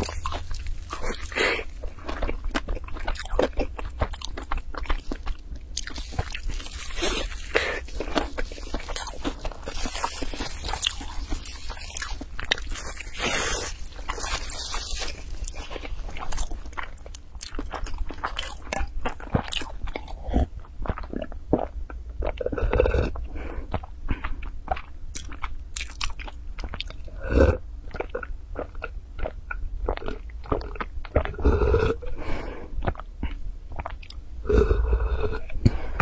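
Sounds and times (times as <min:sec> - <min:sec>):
chewing with small clicks: 0:00.0 - 0:13.0, 0:13.9 - 0:27.1, 0:27.9 - 0:31.4
swallowing gulps: 0:26.7 - 0:32.2.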